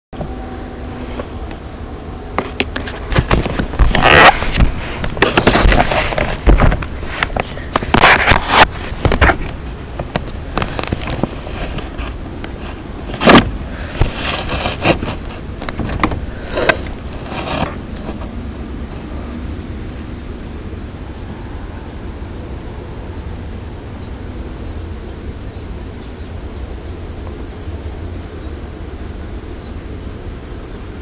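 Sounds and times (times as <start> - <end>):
steady low rumble: 0.2 - 30.0
scraping rustling on microphone: 0.9 - 1.4, 2.4 - 19.8.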